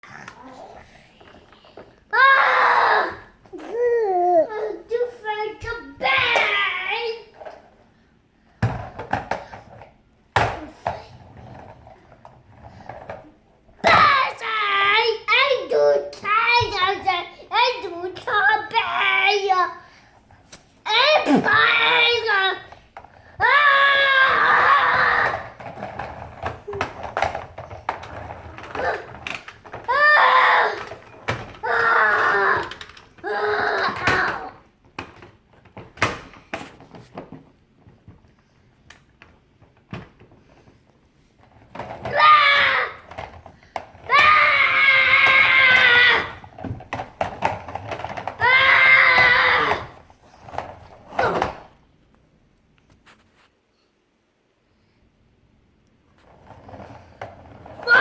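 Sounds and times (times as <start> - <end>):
child making truck growls: 0.0 - 1.1, 31.6 - 34.5.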